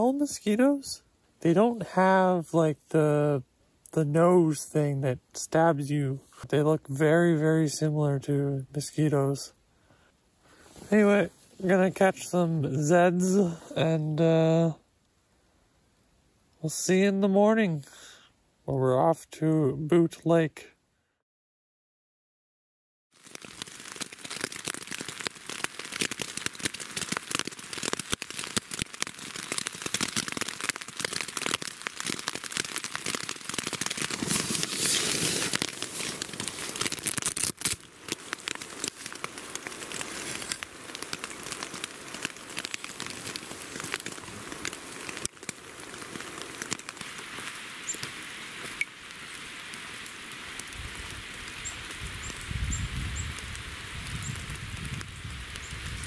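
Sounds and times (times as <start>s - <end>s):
rain pattering on a tent: 10.7s - 14.7s, 23.1s - 56.0s.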